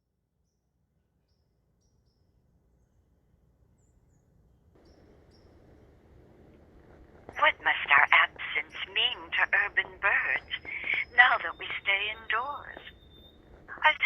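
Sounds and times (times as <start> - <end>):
low background noise: 2.4 - 14.0
sparrows chirping: 4.8 - 5.8, 7.4 - 14.0.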